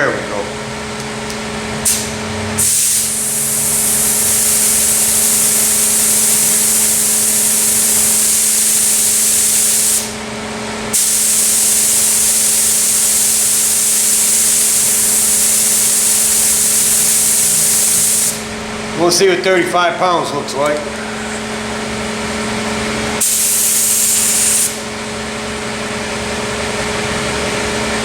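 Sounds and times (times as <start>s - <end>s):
spray gun air hiss: 1.8s - 10.2s, 10.9s - 18.5s, 23.2s - 24.9s.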